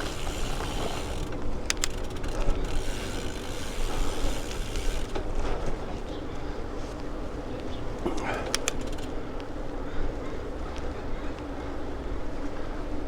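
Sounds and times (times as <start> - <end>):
bicycle freewheel ratcheting clicks: 0.0 - 5.3, 8.5 - 9.2
wind and tyre rumble: 0.0 - 13.0.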